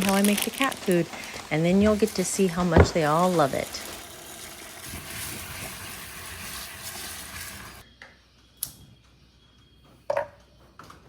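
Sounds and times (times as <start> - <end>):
sizzling hiss: 0.0 - 7.9.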